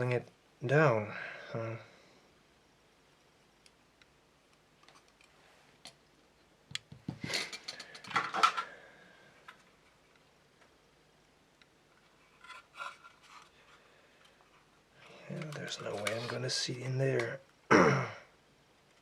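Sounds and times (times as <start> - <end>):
plastic parts clicking and rattling: 6.7 - 8.7
faint scrapes and clicks: 11.9 - 16.4.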